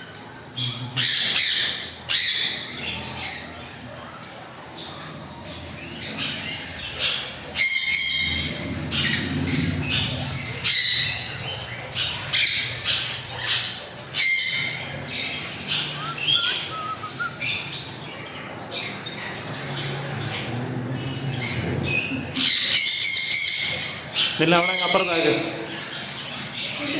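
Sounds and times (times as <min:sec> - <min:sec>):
parrots squawking: 0:00.5 - 0:26.9
parrot chirps: 0:10.3 - 0:17.8.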